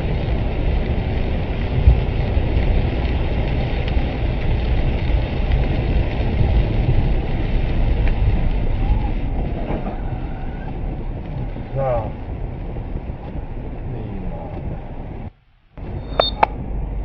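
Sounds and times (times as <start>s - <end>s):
vehicle road and engine rumble: 0.0s - 17.0s.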